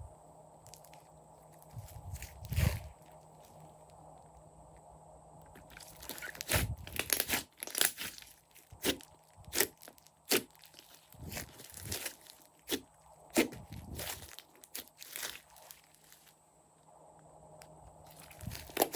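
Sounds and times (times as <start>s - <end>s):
slime squeezed by hand crackling: 5.5s - 16.2s, 18.1s - 18.9s.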